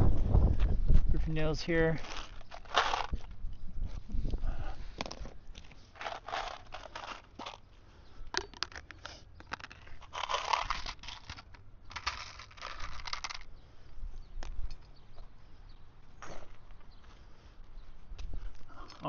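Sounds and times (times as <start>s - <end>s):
rustling and scraping of shingles: 1.9s - 4.1s, 4.8s - 13.8s.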